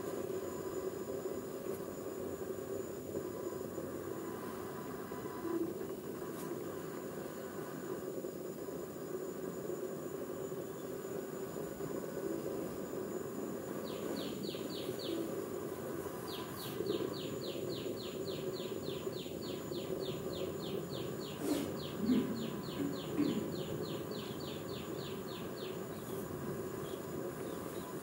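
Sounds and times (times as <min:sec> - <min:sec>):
low background hum: 0:00.0 - 0:28.0
bird chirping: 0:13.8 - 0:15.4, 0:16.2 - 0:28.0.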